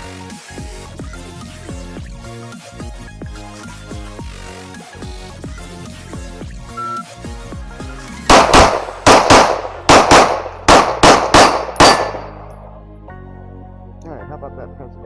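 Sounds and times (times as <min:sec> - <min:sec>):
background music: 0:00.0 - 0:15.0
shot timer beep: 0:06.8 - 0:07.0
pistol firing rapid shots: 0:08.3 - 0:12.5.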